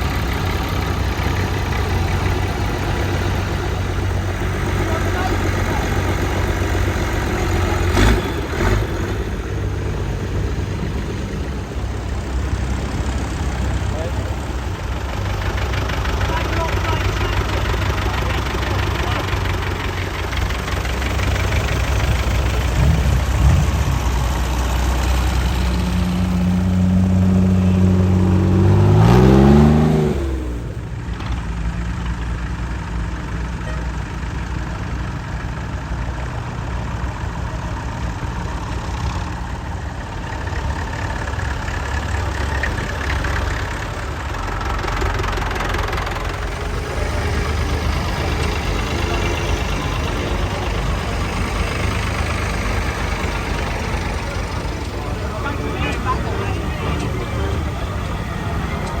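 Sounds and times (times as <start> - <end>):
engine revving up: 0.0 - 31.0, 45.1 - 59.0
tractor engines running: 0.0 - 59.0.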